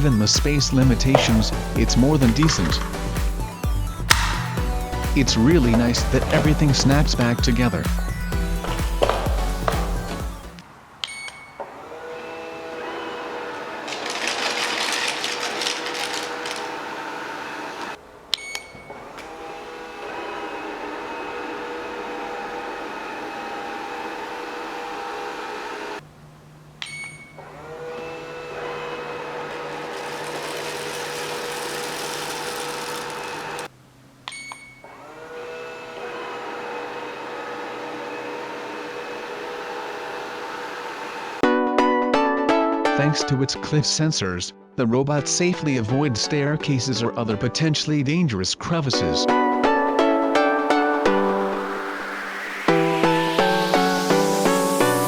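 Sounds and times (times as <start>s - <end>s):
robot vacuum cleaner running: 0.0s - 3.5s, 11.8s - 18.0s, 19.1s - 26.0s, 27.4s - 33.7s, 35.0s - 41.4s.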